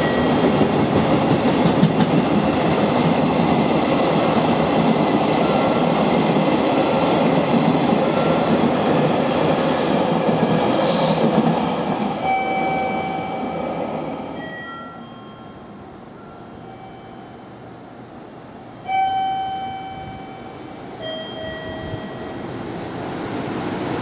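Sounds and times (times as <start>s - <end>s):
train wheels clattering: 0.0s - 6.5s.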